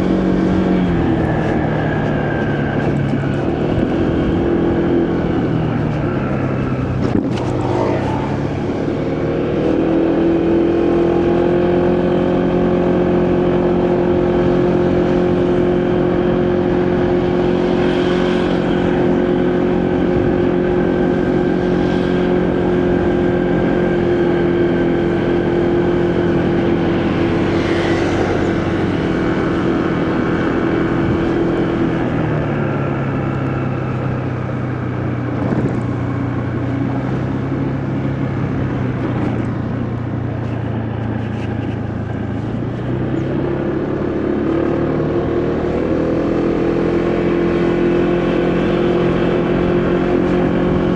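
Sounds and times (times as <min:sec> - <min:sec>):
motorcycle engine: 0:00.0 - 0:50.9
wind rushing: 0:00.2 - 0:10.2.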